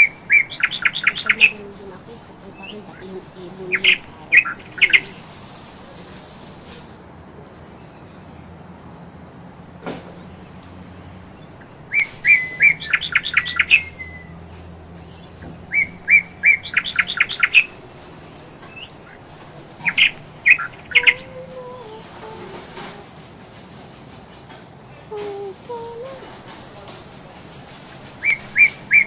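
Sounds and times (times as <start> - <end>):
bird chirping: 0.0 - 6.0, 7.6 - 8.6, 10.0 - 23.4, 27.7 - 29.0.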